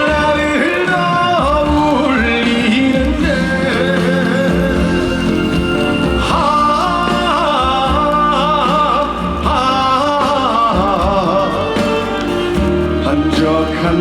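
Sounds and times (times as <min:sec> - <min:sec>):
lead melody with vibrato: 0:00.0 - 0:14.0
live band playing ballad: 0:00.0 - 0:14.0.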